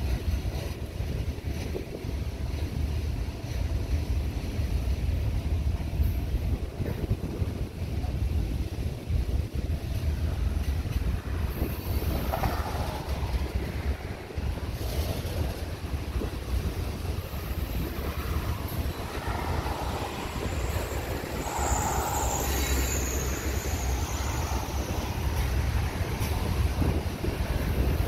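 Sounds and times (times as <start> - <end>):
train wheels rumbling on bridge: 0.0 - 28.0
high wheel squeal: 17.4 - 27.0.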